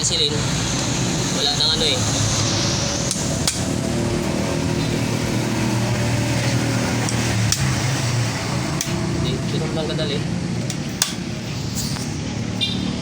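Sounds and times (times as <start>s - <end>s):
hand tool tapping metal: 7.0s - 7.7s, 8.8s - 9.0s, 10.6s - 12.1s.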